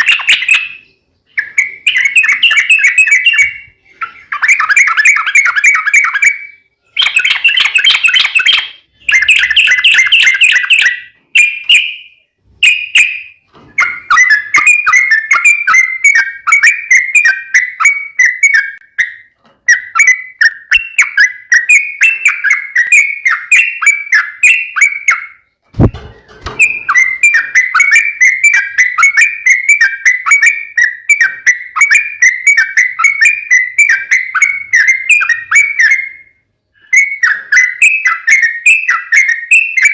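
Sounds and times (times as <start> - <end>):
bird singing chattering whistles: 0.0 - 39.9.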